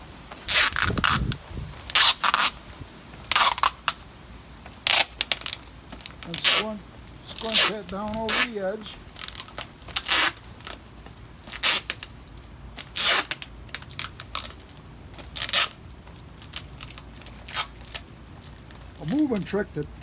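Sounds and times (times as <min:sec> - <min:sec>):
tape pulled off roll: 0:00.0 - 0:04.0
tape crinkling and taps: 0:03.1 - 0:19.7.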